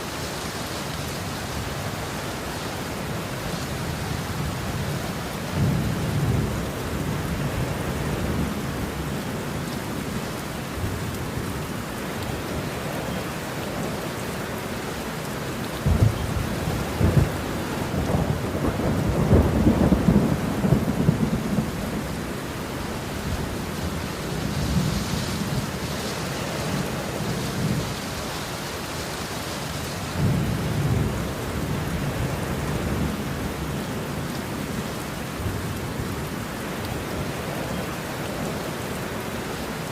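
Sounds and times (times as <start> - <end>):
heavy rain: 0.0 - 39.9
rolling thunder: 15.8 - 22.3.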